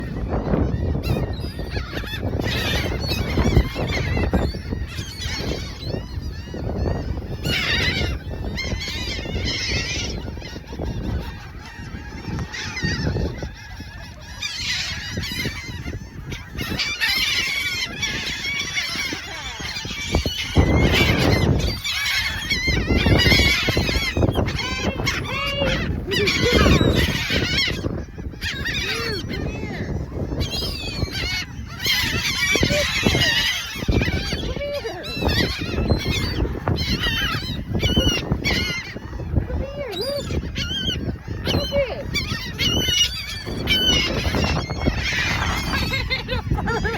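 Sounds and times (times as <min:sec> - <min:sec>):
gulls calling: 0:00.0 - 0:46.9.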